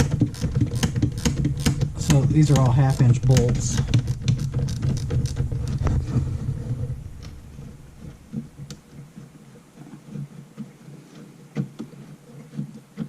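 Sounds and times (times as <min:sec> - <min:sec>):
socket ratchet clicking: 0:00.0 - 0:05.1
low rumble: 0:00.0 - 0:09.8.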